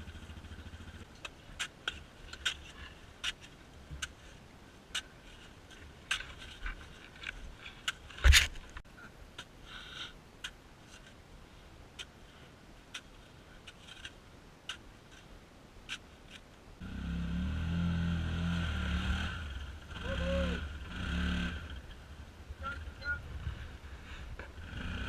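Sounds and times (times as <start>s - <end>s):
vehicle engine running: 0.0s - 1.3s, 16.8s - 25.0s.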